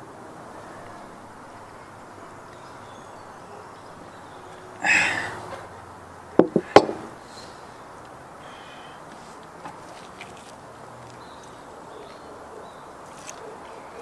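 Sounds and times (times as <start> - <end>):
sharp knocks: 6.4 - 7.1.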